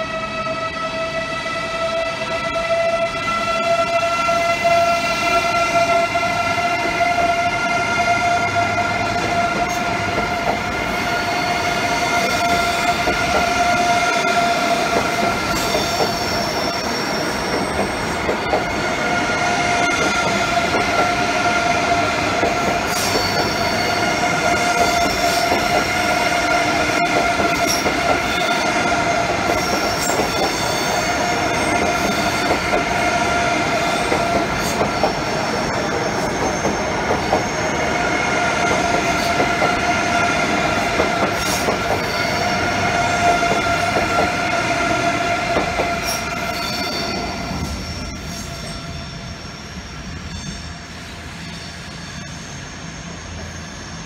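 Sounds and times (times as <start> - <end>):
train traction motor whine: 0.0 - 54.0
wheel squeals: 22.5 - 44.4, 45.6 - 54.0.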